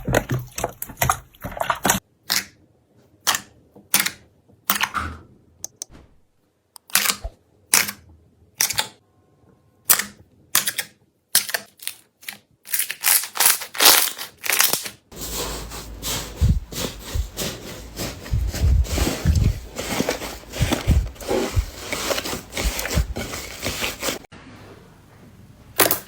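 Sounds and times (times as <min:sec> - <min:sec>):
soft low thuds: 0:16.4 - 0:17.4, 0:18.2 - 0:19.8.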